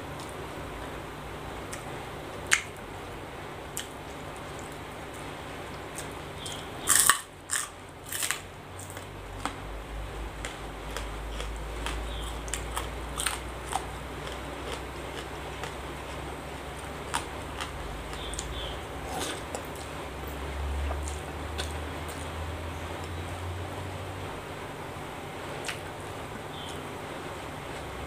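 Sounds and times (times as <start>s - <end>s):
crunching bites of vegetables: 3.8s - 9.6s, 10.3s - 23.2s
quiet chewing: 10.4s - 22.4s, 25.6s - 26.0s.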